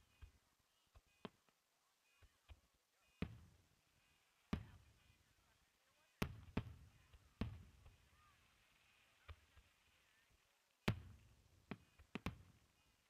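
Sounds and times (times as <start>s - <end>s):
fireworks bursting with rumble: 0.0s - 13.0s
small firework pops: 6.2s - 8.3s, 9.2s - 9.8s, 10.8s - 12.8s.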